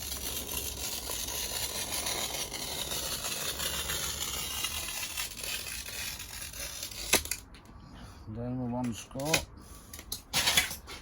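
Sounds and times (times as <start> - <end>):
glass cutter scoring glass: 0.0 - 7.4.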